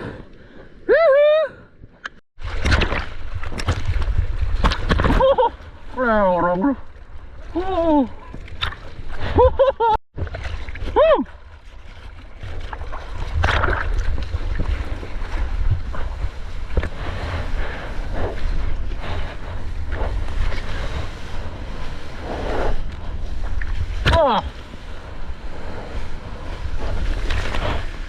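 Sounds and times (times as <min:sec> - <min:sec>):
water sloshing: 0:02.4 - 0:17.6
wind buffeting microphone: 0:13.1 - 0:28.0
ocean surf: 0:14.7 - 0:28.0.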